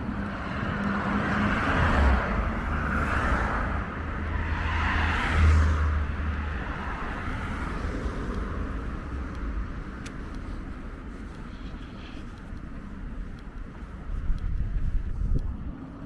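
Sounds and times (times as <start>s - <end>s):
car passing by: 0.0s - 10.3s
wind rumble on microphone: 0.0s - 16.0s.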